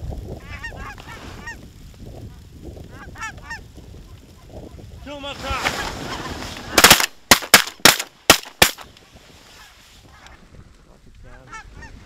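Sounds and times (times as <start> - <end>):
shotgun blasts: 6.7 - 8.9.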